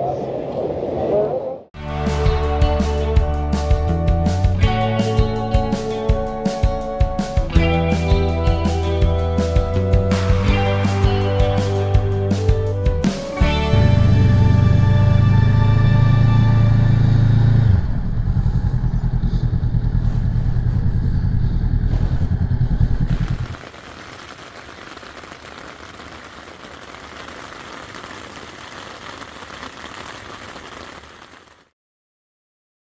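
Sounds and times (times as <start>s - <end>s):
motorcycle engine running: 9.8s - 23.7s
steady background rumble: 16.7s - 23.5s.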